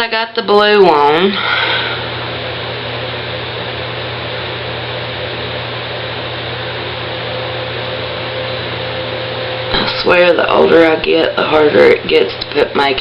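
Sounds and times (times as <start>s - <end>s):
low hum: 1.0s - 13.0s.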